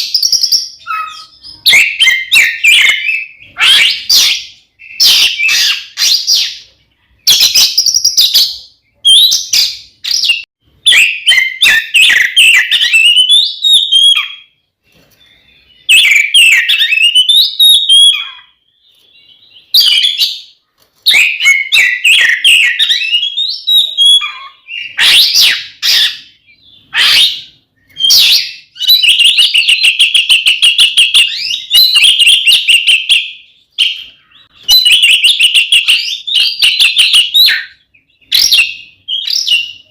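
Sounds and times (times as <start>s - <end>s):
bird singing loudly: 0.0s - 14.6s, 15.3s - 20.5s, 21.1s - 39.9s.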